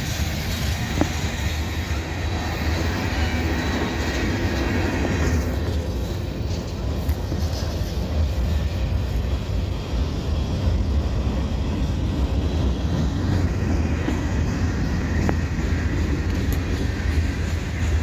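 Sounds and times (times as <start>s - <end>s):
freight train rolling past: 0.0s - 18.0s.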